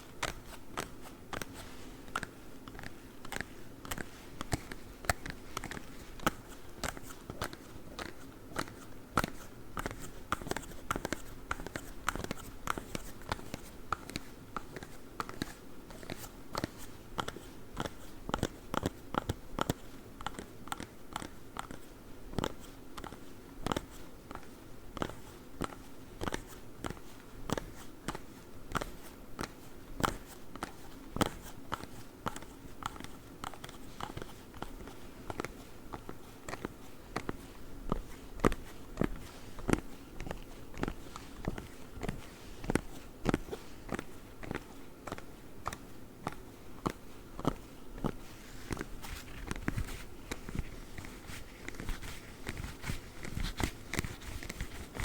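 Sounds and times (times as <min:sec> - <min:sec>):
claw gloves clicking: 0:00.2 - 0:55.0.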